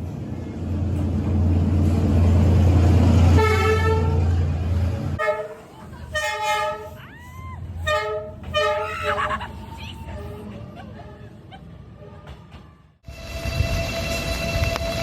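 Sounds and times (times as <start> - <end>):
train engine rumble: 0.0 - 15.0
train horn blast: 3.3 - 4.3, 5.2 - 7.0, 7.8 - 9.2.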